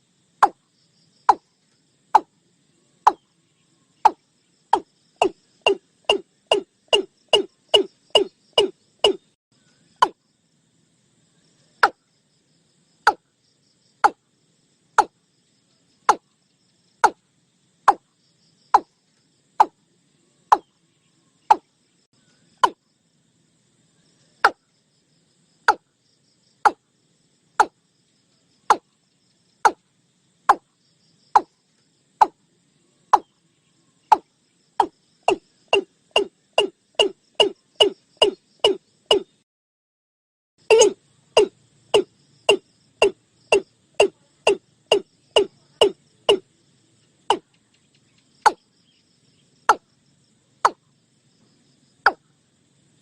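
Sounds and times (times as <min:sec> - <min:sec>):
faint insects: 0:00.0 - 0:39.5, 0:40.6 - 0:53.0
bird calling hollow knocking notes: 0:04.0 - 0:09.4, 0:10.0 - 0:10.2, 0:13.1 - 0:13.3, 0:18.7 - 0:18.9, 0:21.5 - 0:21.7, 0:34.1 - 0:39.3, 0:40.7 - 0:46.4.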